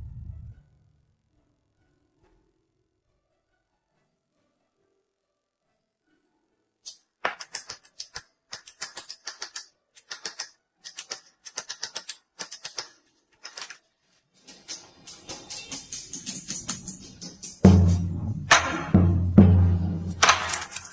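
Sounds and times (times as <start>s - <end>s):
small hammer tapping metal sheet: 6.9s - 13.8s, 14.4s - 20.9s.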